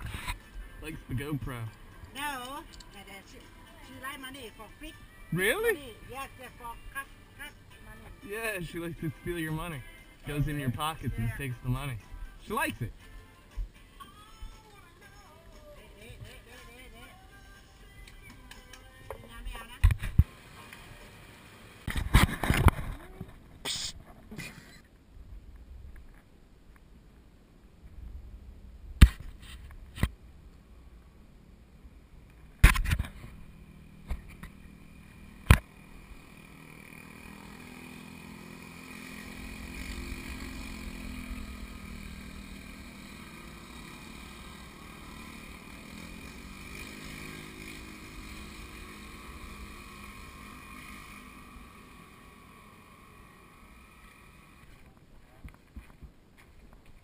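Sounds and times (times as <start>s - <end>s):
vehicle engine passing: 33.1s - 54.7s.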